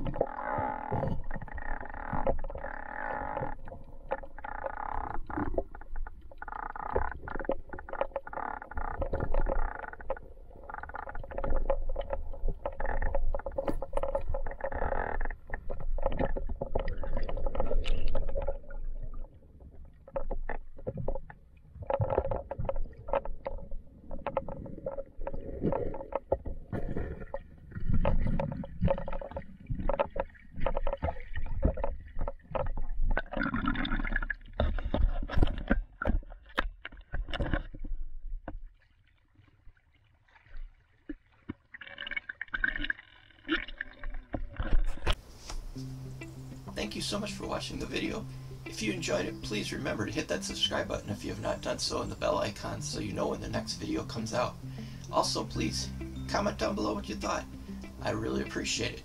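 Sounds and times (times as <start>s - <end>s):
river current rushing underwater: 45.1s - 59.0s.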